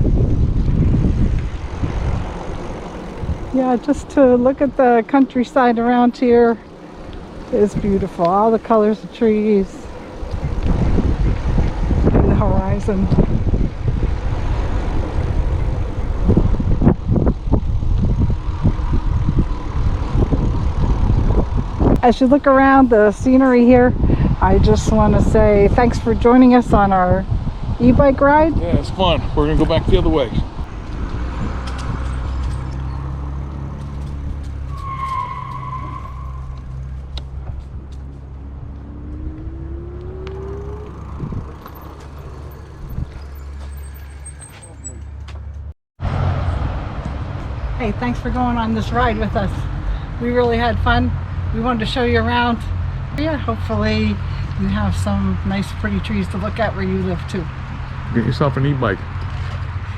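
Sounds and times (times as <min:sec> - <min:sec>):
wind rumbling on microphone: 0:00.0 - 0:59.9
tone rising in pitch: 0:38.1 - 0:44.9.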